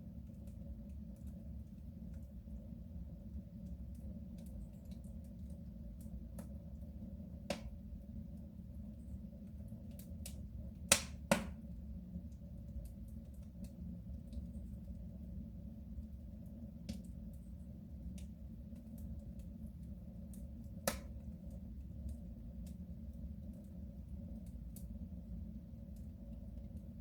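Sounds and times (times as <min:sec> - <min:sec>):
wood fire crackling: 0:00.0 - 0:27.0
loud pops from fire: 0:10.9 - 0:11.6, 0:20.8 - 0:21.2.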